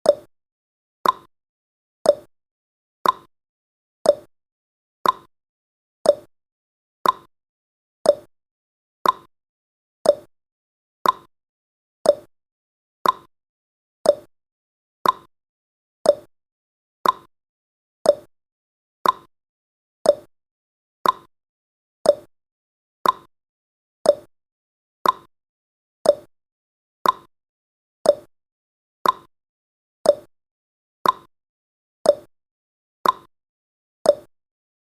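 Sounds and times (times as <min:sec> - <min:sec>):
clock ticking: 0:01.0 - 0:01.3, 0:05.0 - 0:05.3, 0:07.0 - 0:07.3, 0:08.1 - 0:08.3, 0:09.0 - 0:09.3, 0:10.1 - 0:10.3, 0:11.0 - 0:11.3, 0:12.1 - 0:12.3, 0:13.0 - 0:13.3, 0:14.1 - 0:14.3, 0:15.0 - 0:15.3, 0:16.1 - 0:16.3, 0:17.0 - 0:17.3, 0:18.1 - 0:18.3, 0:19.0 - 0:19.3, 0:20.1 - 0:20.3, 0:21.0 - 0:21.3, 0:22.1 - 0:22.3, 0:23.0 - 0:23.3, 0:24.1 - 0:24.3, 0:25.0 - 0:25.3, 0:26.0 - 0:26.3, 0:27.0 - 0:27.3, 0:28.1 - 0:28.3, 0:29.0 - 0:29.3, 0:30.1 - 0:30.3, 0:31.0 - 0:31.3, 0:32.1 - 0:32.3, 0:33.0 - 0:33.3, 0:34.1 - 0:34.3.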